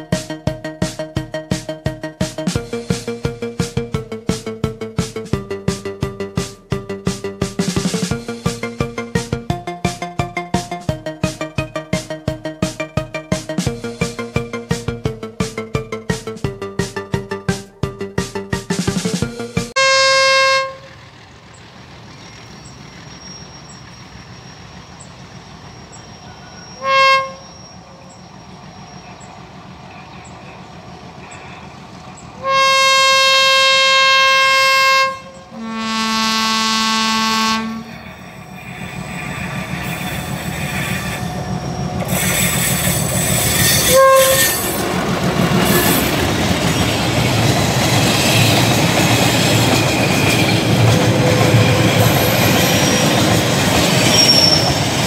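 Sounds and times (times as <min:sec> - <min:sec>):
wheels clattering on rails: 0:00.0 - 0:19.8, 0:20.6 - 0:32.6, 0:37.8 - 0:55.0
train rumble: 0:00.0 - 0:55.0
diesel locomotive horn blasts: 0:19.8 - 0:21.2, 0:25.5 - 0:29.2, 0:32.4 - 0:38.4, 0:43.5 - 0:45.0.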